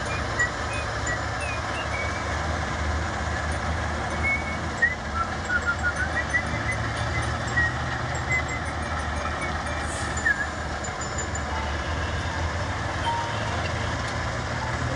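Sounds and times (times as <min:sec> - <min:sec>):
heavy diesel machinery running: 0:00.0 - 0:14.9
short high chirps: 0:05.7 - 0:12.2.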